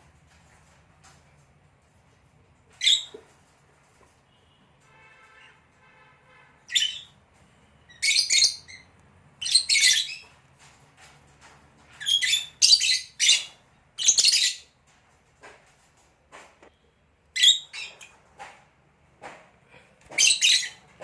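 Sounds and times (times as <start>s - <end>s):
lovebirds chirping and screeching: 2.7s - 3.3s, 6.6s - 7.2s, 7.8s - 10.4s, 11.4s - 14.8s, 17.3s - 18.2s, 20.1s - 21.0s.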